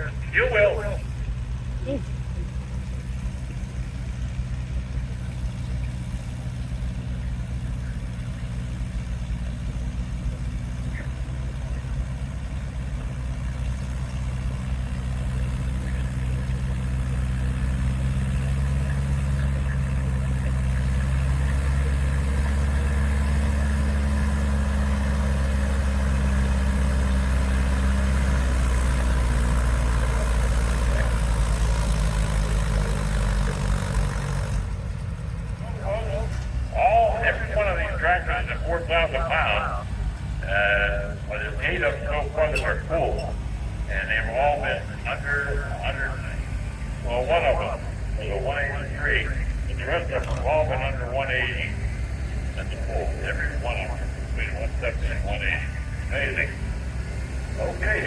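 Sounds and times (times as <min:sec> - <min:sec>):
tractor engine under load: 0:00.0 - 0:58.0.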